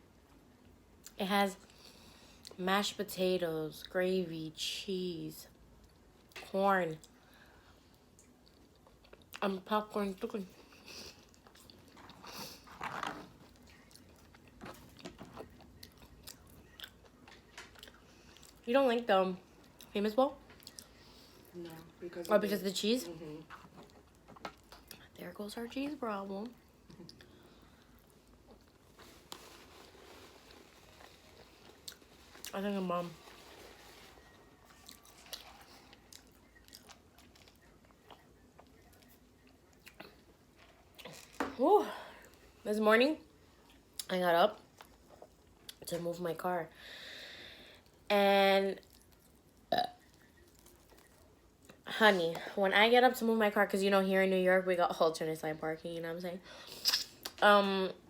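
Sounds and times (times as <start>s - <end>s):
close chewing of food: 10.6s - 18.7s, 26.8s - 41.4s
wet mouth clicks: 56.8s - 57.4s.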